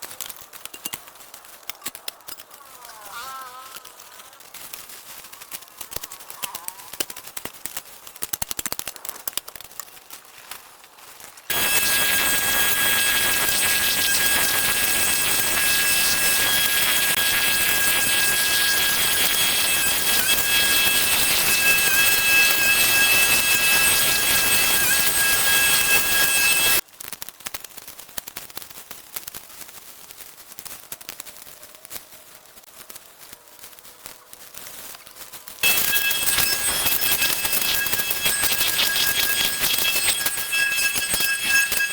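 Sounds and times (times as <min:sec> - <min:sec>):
light clicks and crackles: 0:00.0 - 0:02.9, 0:03.6 - 0:11.5, 0:26.9 - 0:35.6
powered machine running: 0:11.5 - 0:26.8, 0:35.6 - 0:41.9
thin high whines: 0:11.5 - 0:26.8, 0:35.6 - 0:41.9.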